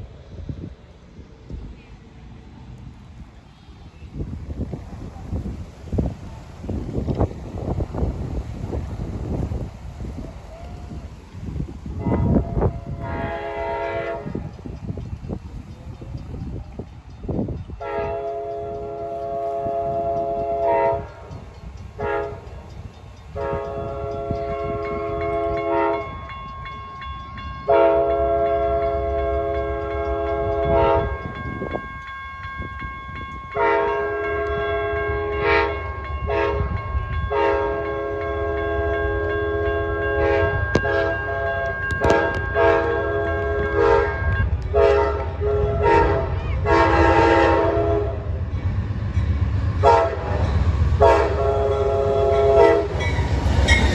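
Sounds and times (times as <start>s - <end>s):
train rumble: 0.0s - 53.9s
locomotive air horn blasts: 12.0s - 14.5s, 17.8s - 21.3s, 22.0s - 22.5s, 23.3s - 26.2s, 27.7s - 31.4s, 33.5s - 48.3s, 49.8s - 50.4s, 51.0s - 53.2s.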